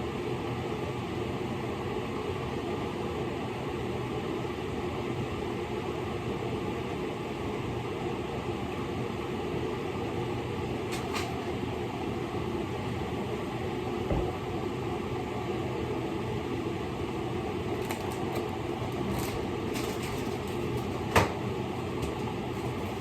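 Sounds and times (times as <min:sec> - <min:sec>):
mechanical whirring hum: 0:00.0 - 0:23.0.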